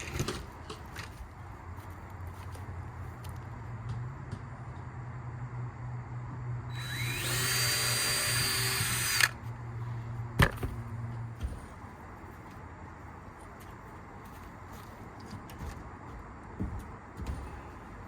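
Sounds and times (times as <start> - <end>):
steady low hum: 0.0 - 18.0
power drill whining: 6.7 - 9.4.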